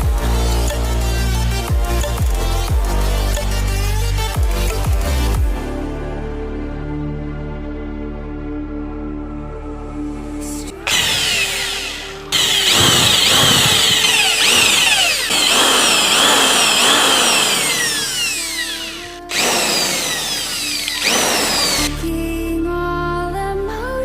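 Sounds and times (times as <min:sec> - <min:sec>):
electric power drill whining: 0:10.6 - 0:22.1.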